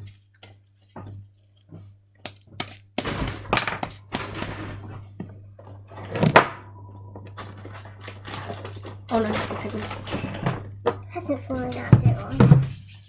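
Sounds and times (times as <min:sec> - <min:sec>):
slime rustling and squelching: 0:07.3 - 0:13.0.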